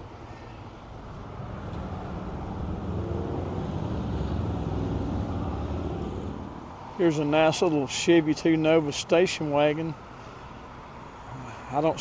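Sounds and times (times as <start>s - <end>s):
car engine rumbling: 0.0s - 7.3s.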